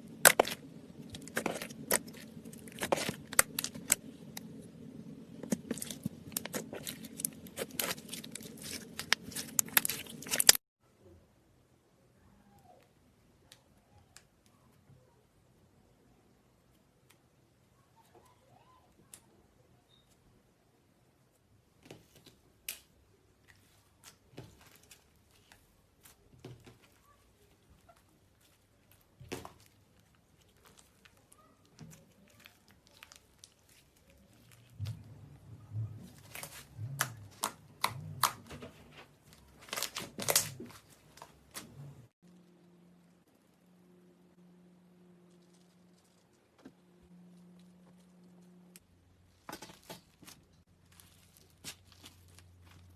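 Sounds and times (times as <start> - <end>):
slime crackling and popping: 0.0 - 10.6, 28.3 - 35.0, 39.5 - 41.7.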